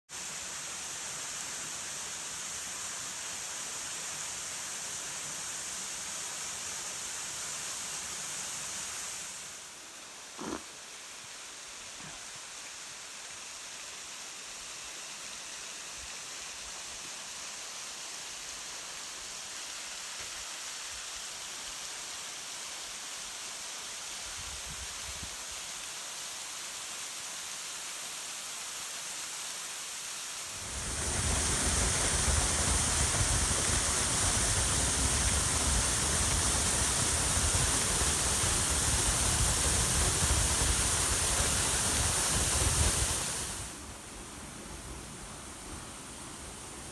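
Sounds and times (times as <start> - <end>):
waterfall roaring: 30.5 - 46.9.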